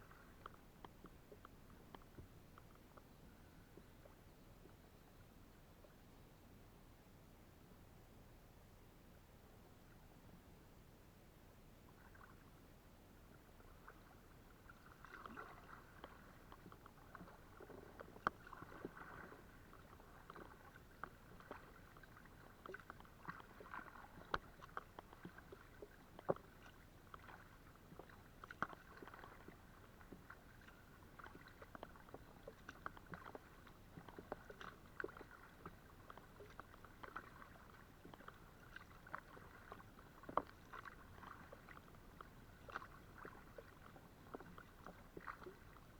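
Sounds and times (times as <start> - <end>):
paddle splashing water: 0.0 - 4.9, 11.9 - 45.9
sharp little ticks and knocks: 0.4 - 3.1.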